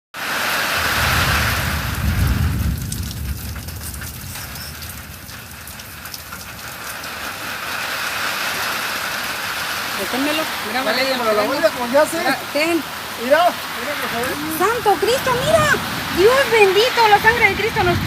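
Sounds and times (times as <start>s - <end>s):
rain hiss: 0.2s - 18.0s
wind rumbling on microphone: 0.8s - 8.0s, 14.0s - 18.0s.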